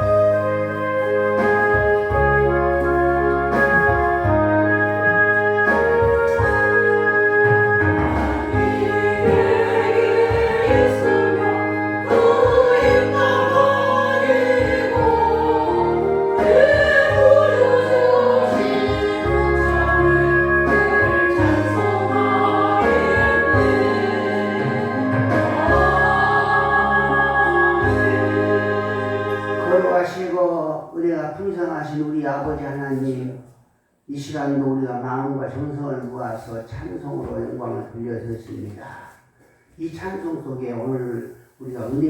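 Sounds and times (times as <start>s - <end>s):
keyboard chords: 0.0s - 30.4s
group singing a hymn: 7.7s - 30.4s.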